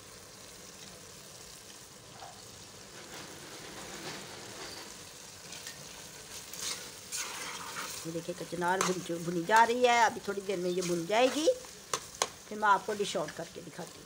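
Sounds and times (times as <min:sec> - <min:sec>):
curry sizzling in oil: 0:00.0 - 0:14.0
spatula scraping pot: 0:06.4 - 0:08.0, 0:10.7 - 0:11.6.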